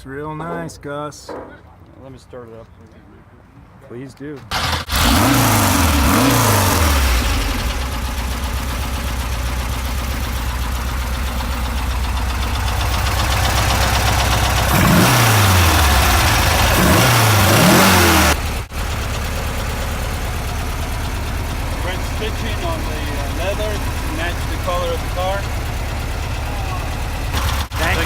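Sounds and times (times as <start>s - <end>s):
car engine idling: 4.5s - 28.0s
engine throttle blips: 4.5s - 28.0s.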